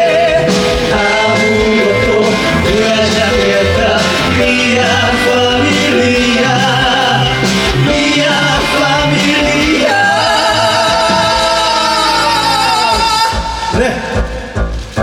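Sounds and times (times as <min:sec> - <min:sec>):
male voices singing: 0:00.0 - 0:14.7
live band playing: 0:00.0 - 0:15.0.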